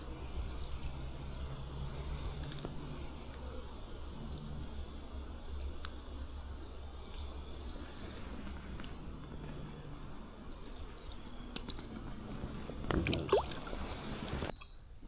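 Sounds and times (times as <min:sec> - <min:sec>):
water splashing in a creek: 0:12.7 - 0:14.5.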